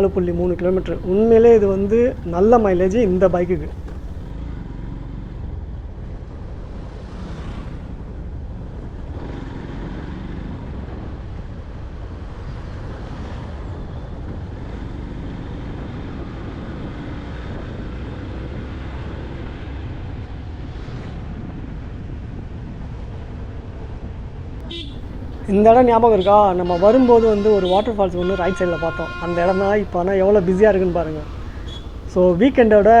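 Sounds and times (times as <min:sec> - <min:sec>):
motorcycle engine rumble: 0:00.0 - 0:06.4, 0:24.6 - 0:33.0.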